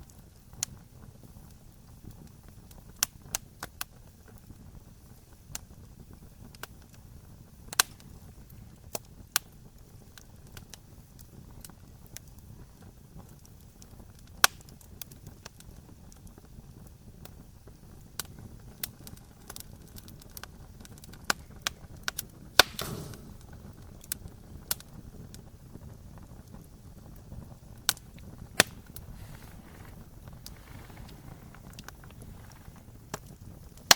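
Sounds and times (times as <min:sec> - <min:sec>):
low rumble of flames: 0:00.0 - 0:33.9
wood fire crackling: 0:00.0 - 0:33.9
hiss of escaping gas: 0:22.6 - 0:23.5, 0:28.8 - 0:32.8.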